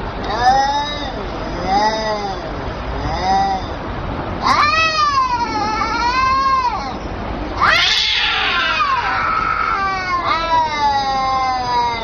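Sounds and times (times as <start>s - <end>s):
cat yowling: 4.4s - 7.0s, 7.6s - 12.0s.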